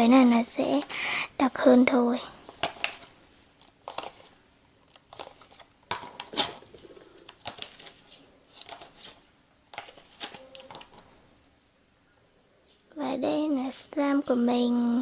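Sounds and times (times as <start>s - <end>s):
slime being stirred: 2.4s - 11.0s.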